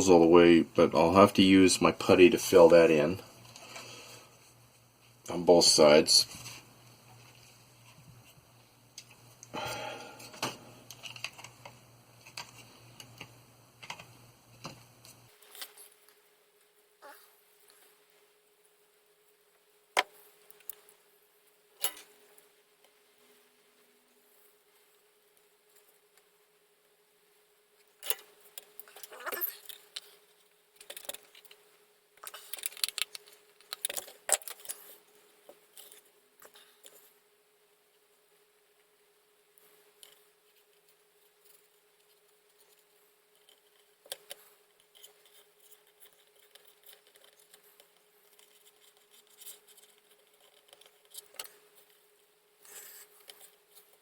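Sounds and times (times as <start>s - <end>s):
low steady hum: 0.0s - 54.0s
plastic parts scraping: 28.0s - 31.6s, 32.2s - 37.1s, 40.0s - 52.0s.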